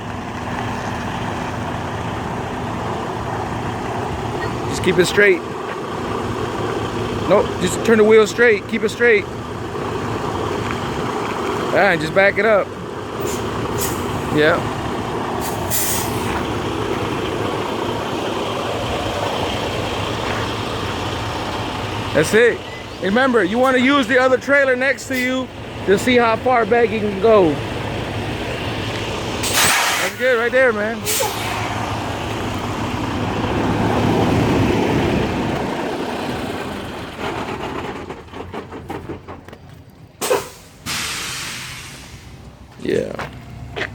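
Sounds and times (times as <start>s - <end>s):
diesel truck engine running: 0.0s - 43.9s
short air hiss: 15.4s - 16.3s, 29.4s - 30.2s, 40.2s - 42.4s.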